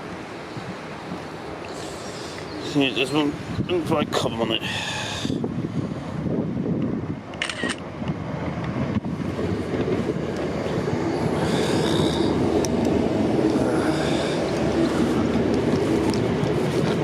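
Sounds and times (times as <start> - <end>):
electric train rumbling: 4.6 - 17.0.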